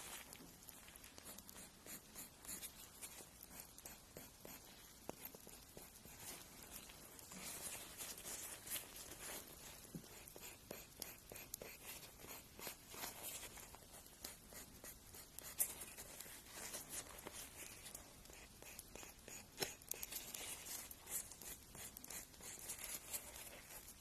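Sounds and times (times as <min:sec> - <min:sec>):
fingernail being filed: 0:10.1 - 0:12.9, 0:18.2 - 0:20.1.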